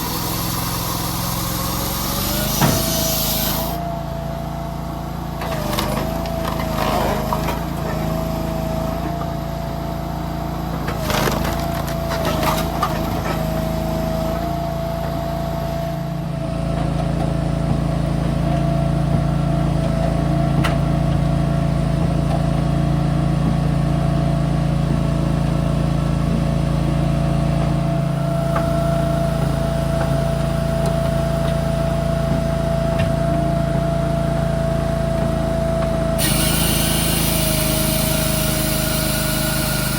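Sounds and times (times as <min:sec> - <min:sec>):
machine engine running: 0:36.0 - 0:39.9.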